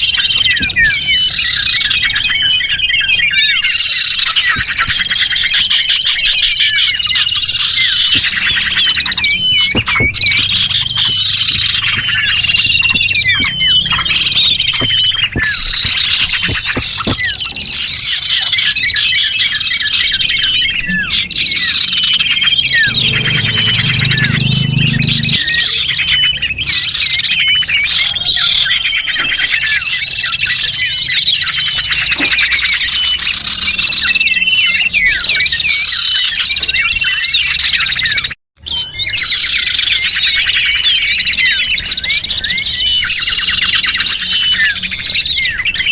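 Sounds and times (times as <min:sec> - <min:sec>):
songbirds chirping and twittering: 0:00.0 - 0:45.9.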